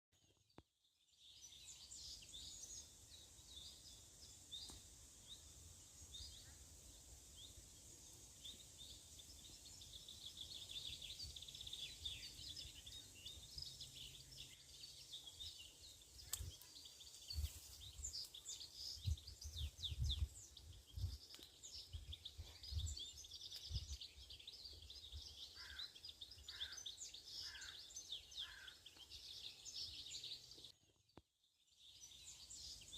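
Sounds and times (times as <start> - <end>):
small birds chirping: 0.2 - 32.9
lower bird calls: 8.4 - 30.7.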